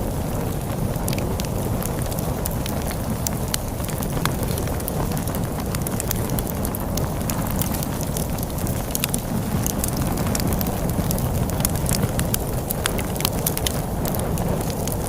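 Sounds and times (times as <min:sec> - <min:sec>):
log fire crackling: 0:00.0 - 0:15.0
low rumble of storm wind: 0:00.0 - 0:15.0.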